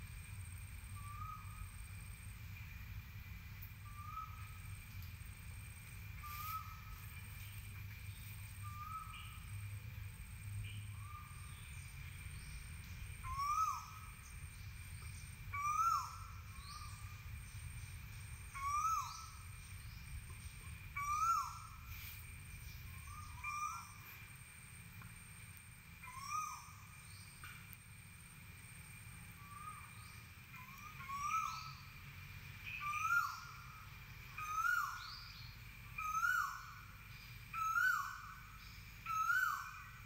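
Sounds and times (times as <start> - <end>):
bird whistled call: 6.2 - 7.0, 18.6 - 19.4, 21.0 - 22.0, 29.4 - 31.9, 32.7 - 33.7, 34.3 - 36.9, 37.5 - 38.4, 39.0 - 40.0.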